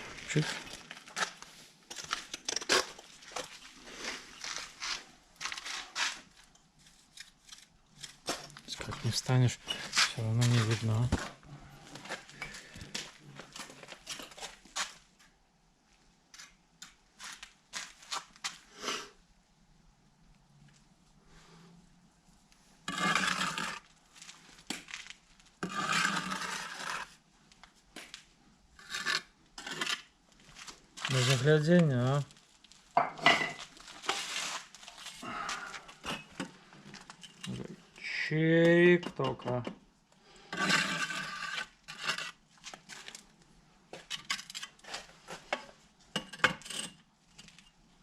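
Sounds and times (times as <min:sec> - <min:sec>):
brick scraping: 0:22.8 - 0:27.2, 0:28.8 - 0:32.3, 0:40.5 - 0:43.1.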